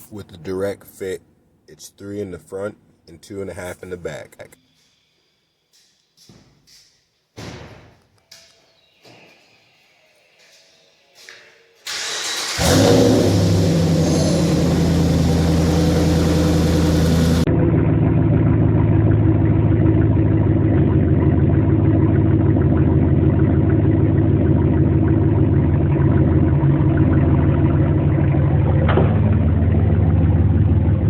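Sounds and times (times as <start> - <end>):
pickup truck exhaust idling: 12.6 - 17.8, 18.4 - 31.0.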